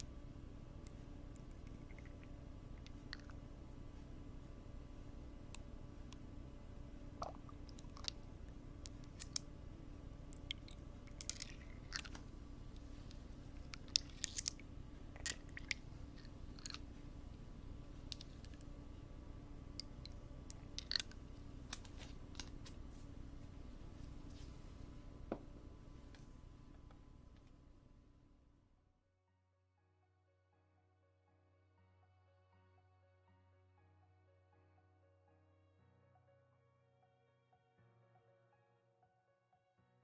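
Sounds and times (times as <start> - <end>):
steady low hum: 0.0 - 28.5.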